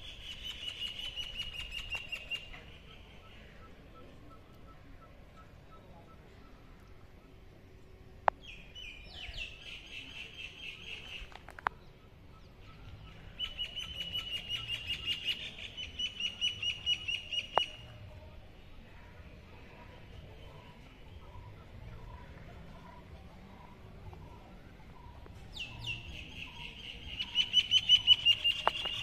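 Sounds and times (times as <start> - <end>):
small bird singing: 20.2 - 29.0.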